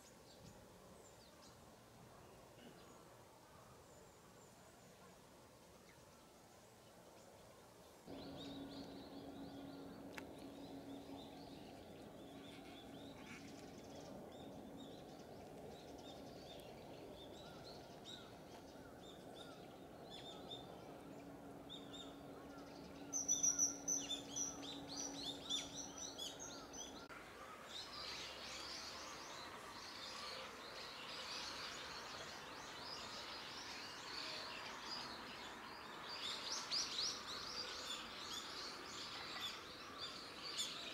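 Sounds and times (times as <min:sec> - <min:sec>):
small birds chirping: 0:07.9 - 0:40.9
steady low hum: 0:08.1 - 0:27.2.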